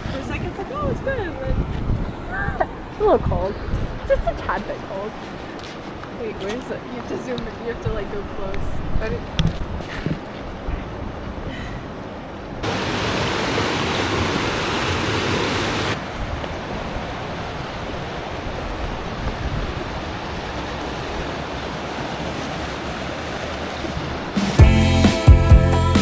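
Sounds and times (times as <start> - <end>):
creek water over rocks: 0.0 - 24.4
music with drums: 24.4 - 26.0.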